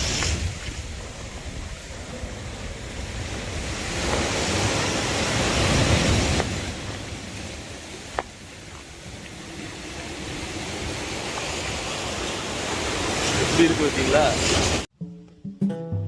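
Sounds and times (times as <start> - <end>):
wind on microphone: 0.0 - 13.5
waves surging up beach: 0.0 - 14.9.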